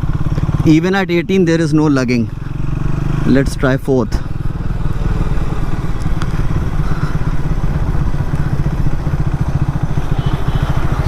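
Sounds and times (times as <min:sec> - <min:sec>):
motorcycle engine low pulsing: 0:00.0 - 0:11.0.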